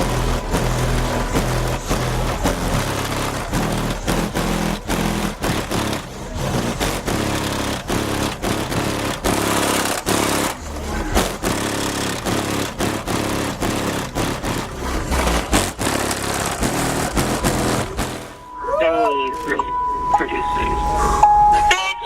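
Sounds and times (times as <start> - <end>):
bass-heavy music through car subwoofers: 0.0 - 15.5.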